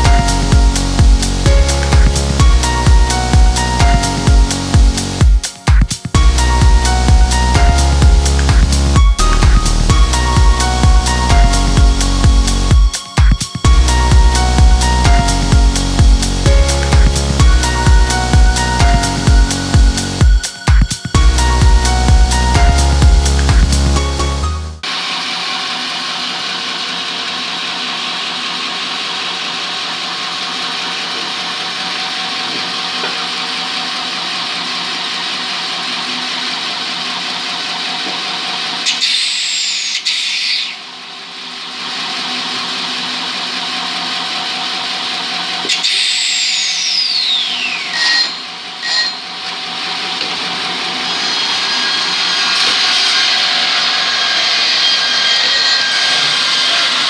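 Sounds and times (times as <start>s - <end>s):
high whine falling in pitch: 0.0s - 25.0s
woodworking machinery whirring: 24.8s - 57.0s.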